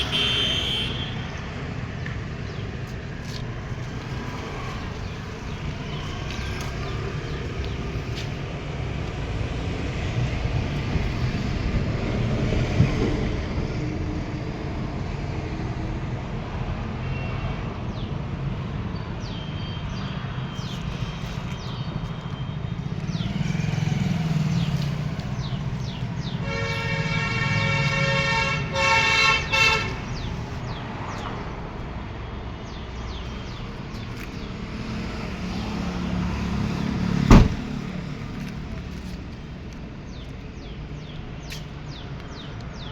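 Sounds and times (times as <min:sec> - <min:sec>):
car horn: 0:00.0 - 0:01.4, 0:26.2 - 0:30.1.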